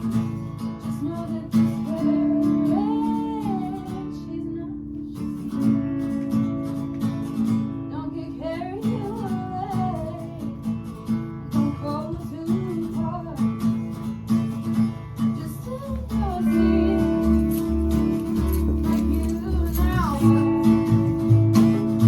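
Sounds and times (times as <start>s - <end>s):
acoustic guitar strumming: 0.0s - 22.0s
person singing: 1.1s - 5.6s, 15.4s - 22.0s
bass part: 16.5s - 22.0s.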